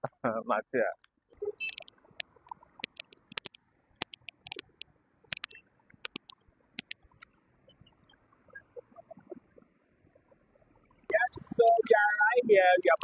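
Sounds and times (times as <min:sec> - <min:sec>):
faint steady hiss: 0:00.0 - 0:13.0
sharp clicks and taps: 0:01.0 - 0:07.4.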